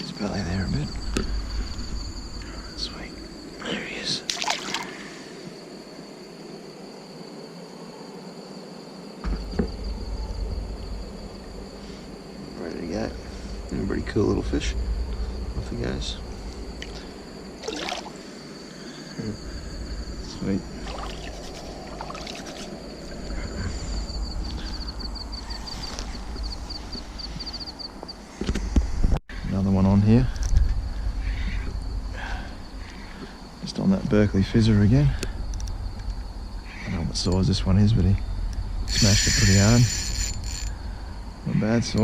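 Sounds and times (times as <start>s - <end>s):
insects trilling: 0.0s - 42.0s
low rumble of outdoor noise: 0.0s - 42.0s
low rumble: 0.6s - 3.6s, 9.4s - 17.6s.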